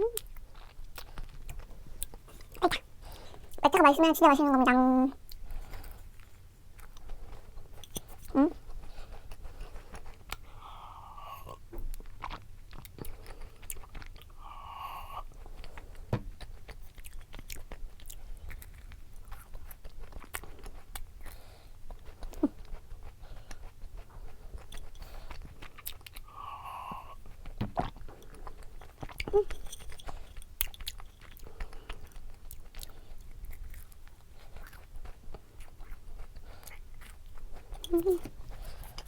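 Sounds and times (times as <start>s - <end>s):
person chewing and biting food: 15.1s - 39.0s.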